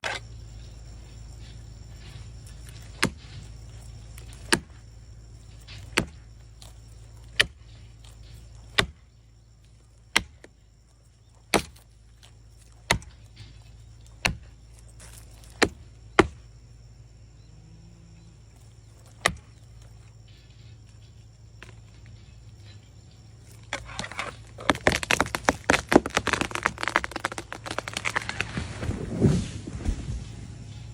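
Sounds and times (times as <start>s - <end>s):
blows striking a tree: 1.4s - 9.1s, 12.7s - 16.6s, 23.8s - 30.9s.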